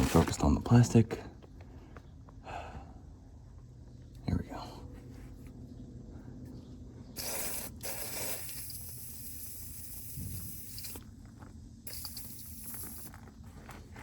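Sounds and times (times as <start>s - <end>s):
aerosol spray hissing: 7.2s - 11.1s, 11.9s - 13.2s.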